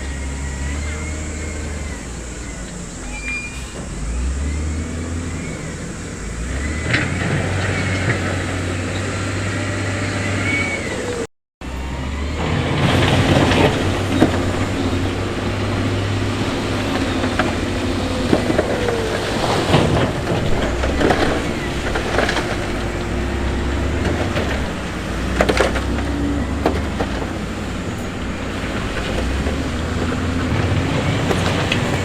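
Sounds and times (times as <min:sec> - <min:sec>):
short high squeals: 0:00.0 - 0:06.0
diesel machinery engine running: 0:00.0 - 0:32.0.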